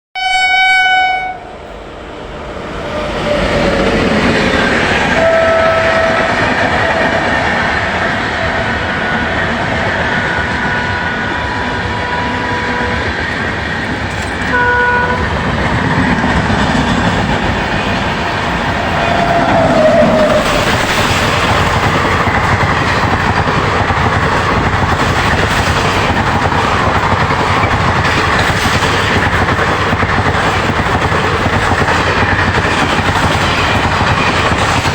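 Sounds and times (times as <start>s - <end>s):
train horn blast: 0.2s - 1.5s, 5.1s - 7.2s, 10.6s - 13.2s, 14.4s - 15.4s
train rumble and wheel clatter: 0.2s - 34.9s.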